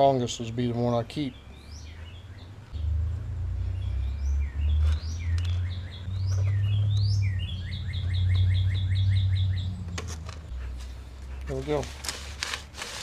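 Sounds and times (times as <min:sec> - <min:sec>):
songbird singing: 0:00.0 - 0:12.0
low rumble: 0:02.6 - 0:11.5.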